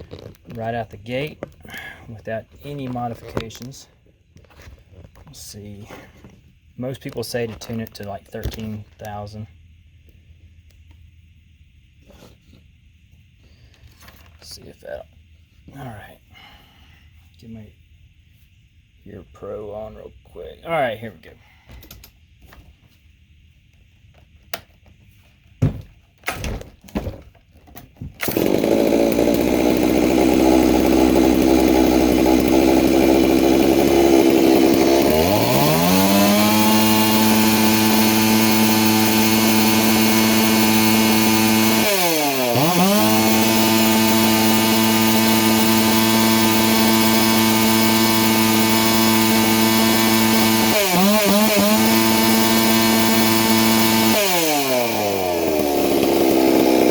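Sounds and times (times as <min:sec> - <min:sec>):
chainsaw revving: 0:28.2 - 0:56.9.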